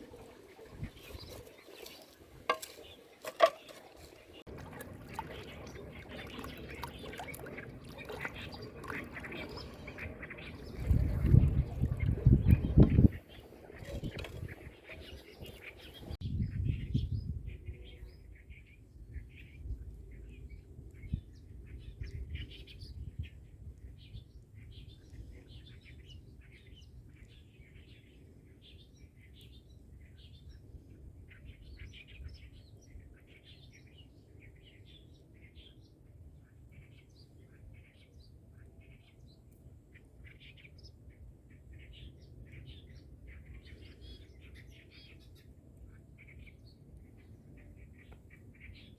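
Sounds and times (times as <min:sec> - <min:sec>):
birds chirping: 0:00.0 - 0:16.2.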